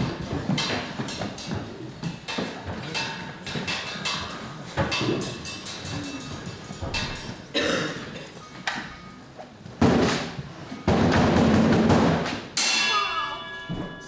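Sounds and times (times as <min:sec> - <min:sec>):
drum strikes: 0:10.9 - 0:14.0.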